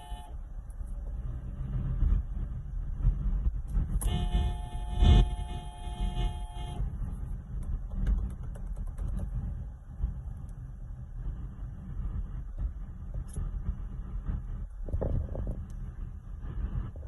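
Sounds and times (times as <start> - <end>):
vehicle horn held: 0.0 - 0.4, 4.0 - 6.9
traffic rumble: 0.0 - 17.0.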